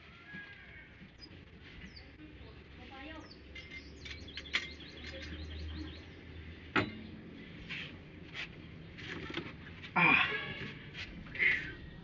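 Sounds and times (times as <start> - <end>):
high bird chirps: 3.2 - 6.2.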